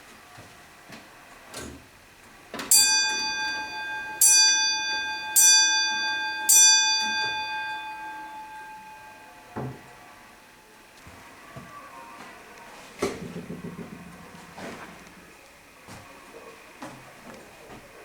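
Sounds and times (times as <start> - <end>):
grandfather clock striking: 2.6 - 10.2.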